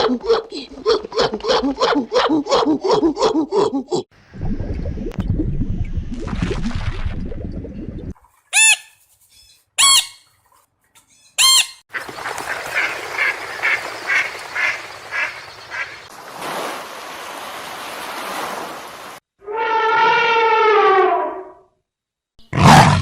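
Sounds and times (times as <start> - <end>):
waterfowl honking: 11.4 - 16.1.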